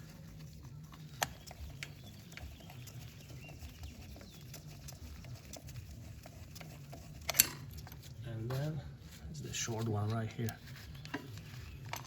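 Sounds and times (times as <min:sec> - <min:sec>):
low steady hum: 0:00.0 - 0:12.0
metallic clicks of bolts and tool: 0:07.3 - 0:07.7.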